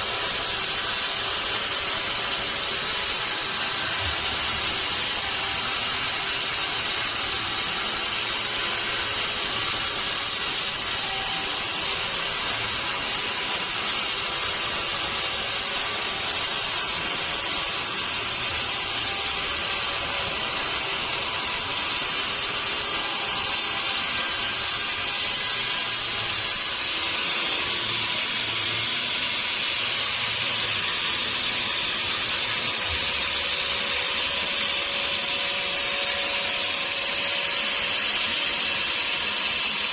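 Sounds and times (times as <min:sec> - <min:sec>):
saw cutting wood: 0:00.0 - 0:39.9.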